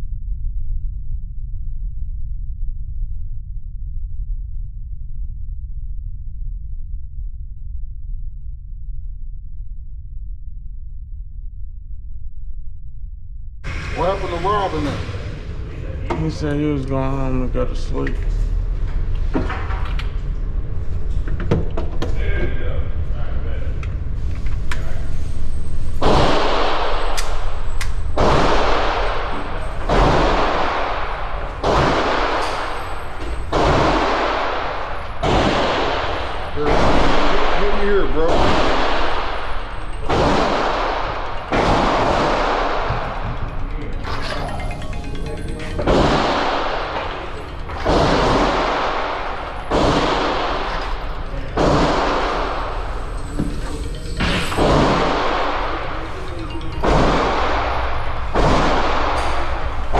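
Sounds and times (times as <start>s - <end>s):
heavy gunshots with echo: 26.0s - 43.5s, 45.9s - 53.3s, 54.2s - 59.9s.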